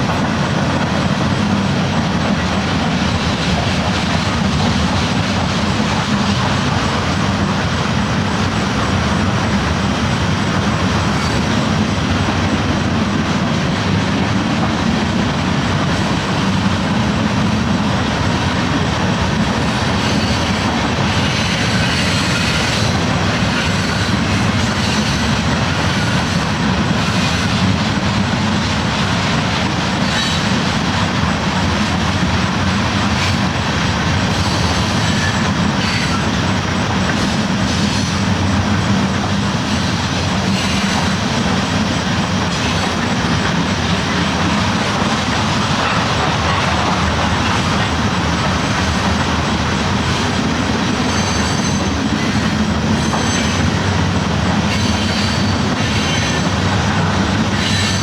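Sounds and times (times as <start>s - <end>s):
train rumbling on tracks: 0.0s - 58.0s.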